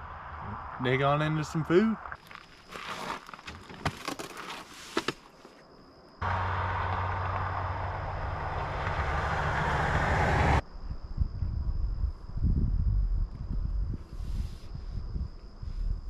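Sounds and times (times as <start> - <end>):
low hum: 0.0 - 1.3, 6.2 - 14.0
vehicle engine and road noise: 6.2 - 10.6.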